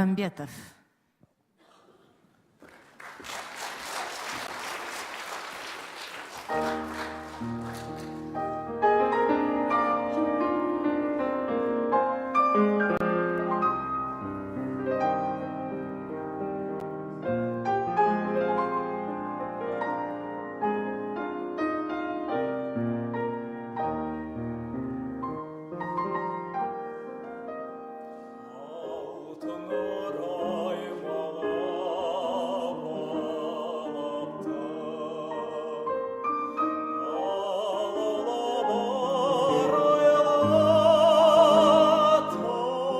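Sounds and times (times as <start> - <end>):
piano accompaniment: 5.8 - 42.9
man singing with vibrato: 28.4 - 42.9.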